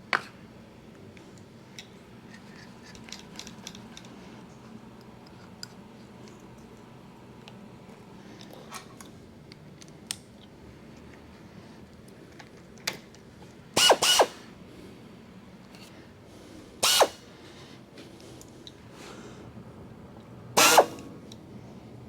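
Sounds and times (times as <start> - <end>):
milling machine hum: 13.8 - 14.4, 16.8 - 17.2, 20.6 - 21.0
shrill tool chatter: 13.8 - 14.4, 16.8 - 17.2, 20.6 - 21.0
tool cutting steel: 13.8 - 14.5, 16.8 - 17.3, 20.6 - 21.1.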